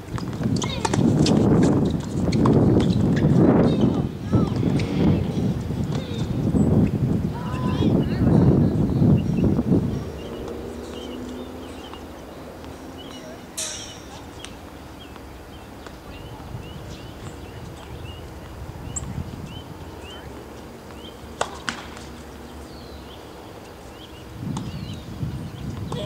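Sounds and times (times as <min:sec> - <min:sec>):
low outdoor rumble: 0:00.0 - 0:26.0
small bird chirping: 0:08.8 - 0:20.3.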